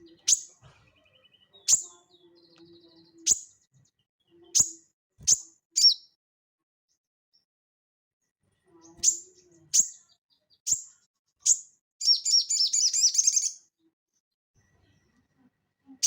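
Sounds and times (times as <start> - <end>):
songbird chirping: 0.0 - 6.2, 8.6 - 13.9.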